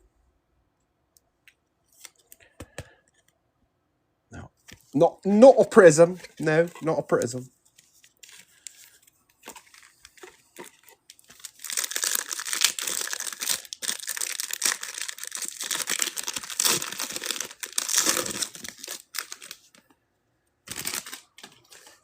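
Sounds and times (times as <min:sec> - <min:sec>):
plastic wrappers tearing and crinkling: 0:08.0 - 0:19.8, 0:20.7 - 0:22.0.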